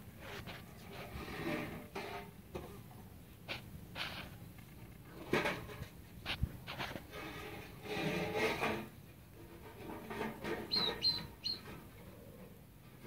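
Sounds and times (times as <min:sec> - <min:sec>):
rustling and scraping: 0:00.0 - 0:13.0
short high bird chirps: 0:10.7 - 0:11.6.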